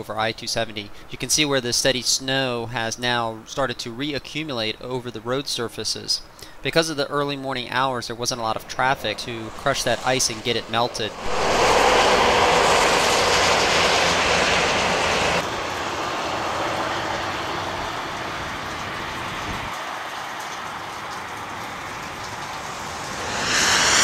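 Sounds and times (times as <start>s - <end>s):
traffic tyres hissing on slush: 9.2s - 24.0s.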